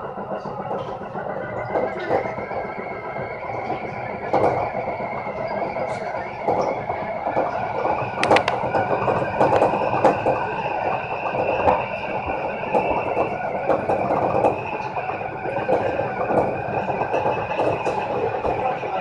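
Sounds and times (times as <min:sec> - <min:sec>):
train wheels rumbling on rails: 0:00.0 - 0:19.0
sharp clicks: 0:08.2 - 0:08.7.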